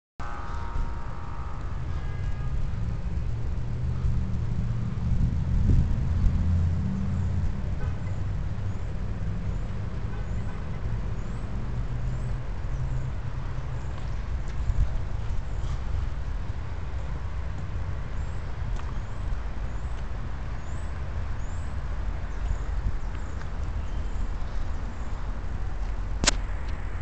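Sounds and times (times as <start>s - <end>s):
wind buffeting microphone: 0.7s - 9.9s, 12.2s - 27.0s.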